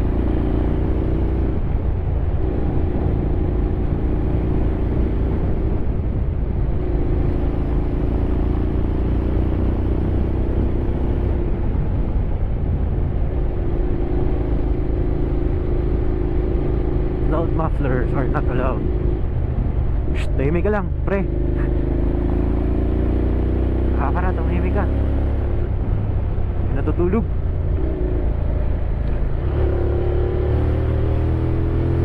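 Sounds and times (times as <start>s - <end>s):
motorcycle engine cruising: 0.0s - 32.0s.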